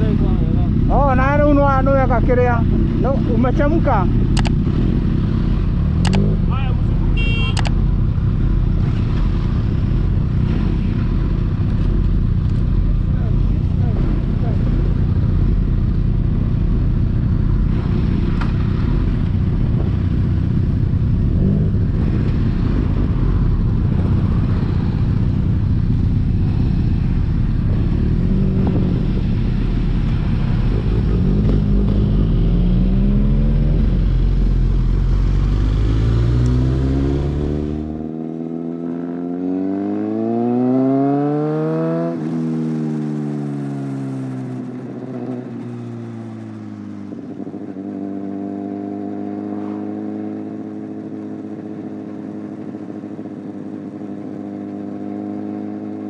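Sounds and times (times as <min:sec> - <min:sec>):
motorcycle engine accelerating: 0:00.0 - 0:56.0
wind rumble on microphone: 0:15.9 - 0:37.8.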